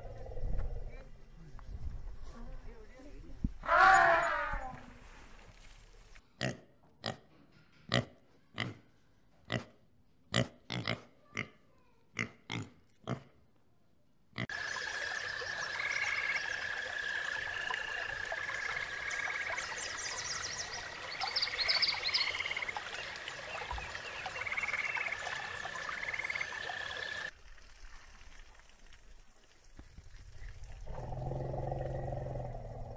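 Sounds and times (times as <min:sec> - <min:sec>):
pig grunting: 0:30.9 - 0:32.9.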